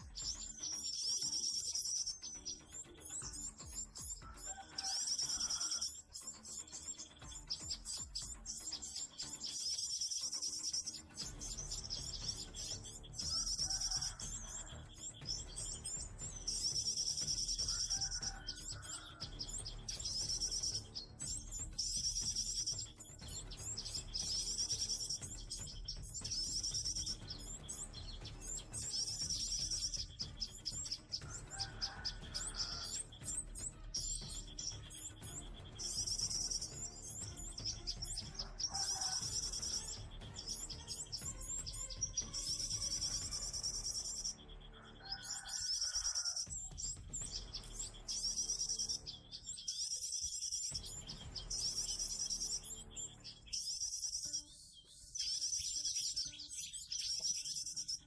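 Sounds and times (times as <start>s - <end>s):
high bird trill: 0.0s - 58.0s
small birds chirping: 0.0s - 58.0s.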